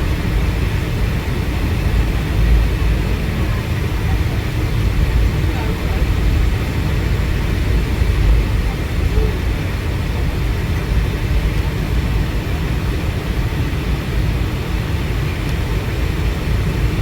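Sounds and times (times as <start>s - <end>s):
aircraft cabin rumble and hiss: 0.0s - 17.0s.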